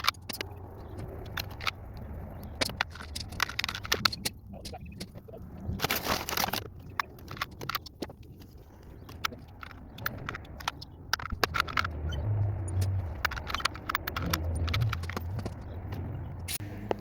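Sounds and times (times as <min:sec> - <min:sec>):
low engine hum: 0:08.8 - 0:17.0
metal screws clinking: 0:09.2 - 0:16.6.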